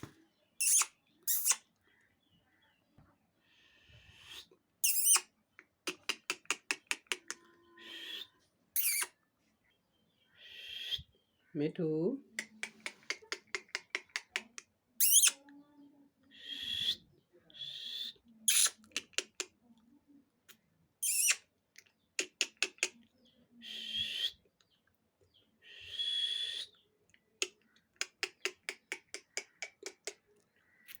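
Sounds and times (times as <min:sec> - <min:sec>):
parrot raspy hissing calls: 0:00.6 - 0:01.6, 0:03.5 - 0:05.2, 0:05.9 - 0:09.1, 0:21.0 - 0:21.4
parrot screeching: 0:04.8 - 0:05.2, 0:07.8 - 0:09.1, 0:15.0 - 0:15.4
parrot quick clicks: 0:05.9 - 0:07.4, 0:12.4 - 0:15.4.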